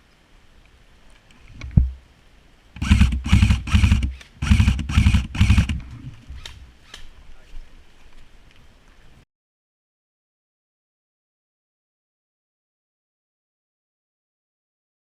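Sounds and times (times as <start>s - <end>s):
airsoft gun full-auto bursts: 2.8s - 5.8s.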